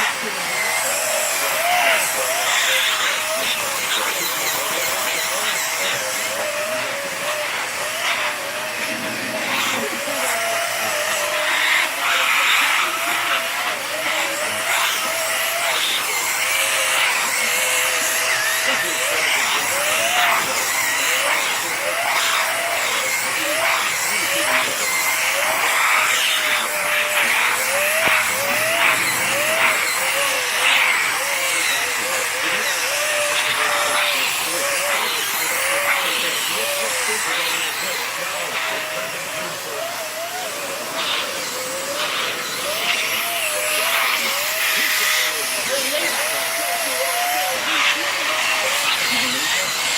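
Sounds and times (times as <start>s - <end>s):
vacuum cleaner motor whine: 0.0s - 49.9s
rushing hiss of air: 23.7s - 31.1s.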